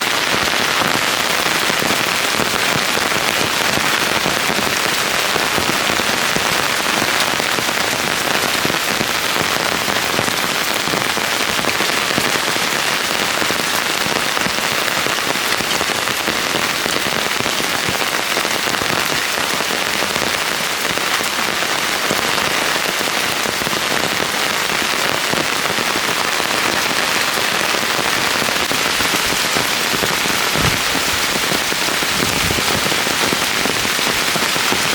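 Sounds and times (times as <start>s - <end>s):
rain pattering on plants: 0.0s - 34.9s.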